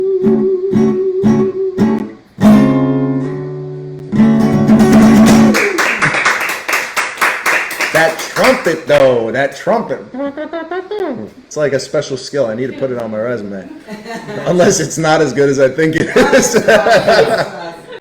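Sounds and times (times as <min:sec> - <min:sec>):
acoustic guitar strumming: 0:00.0 - 0:05.8.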